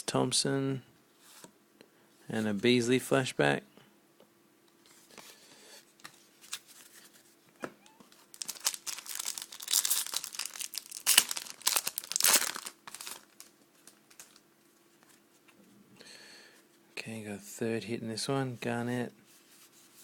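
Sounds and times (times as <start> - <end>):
card pack wrapper tearing and crinkling: 8.1 - 14.4.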